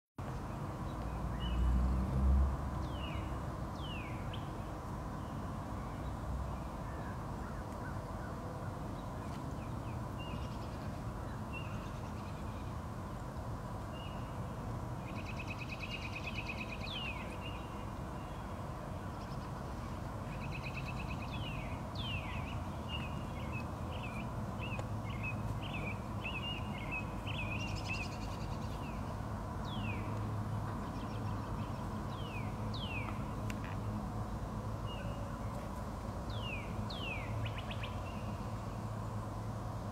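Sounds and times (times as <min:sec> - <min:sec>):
birds chirping and trilling: 0:15.0 - 0:33.4, 0:36.3 - 0:38.9.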